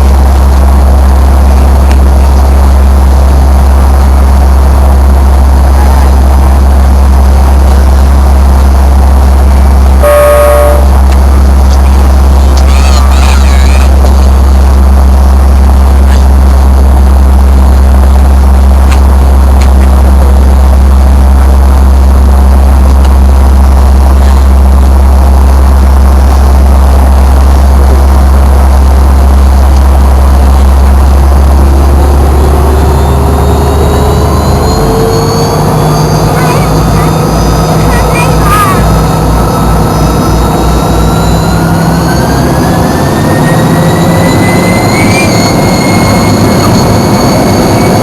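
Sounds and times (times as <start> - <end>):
jet engines droning: 0.0 - 48.0
rising tone: 24.8 - 37.8.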